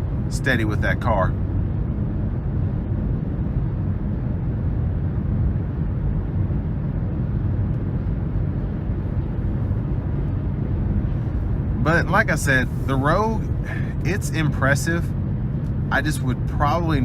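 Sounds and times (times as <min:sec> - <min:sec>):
car engine hum: 0:00.0 - 0:17.0
road and tyre rumble: 0:00.0 - 0:17.0.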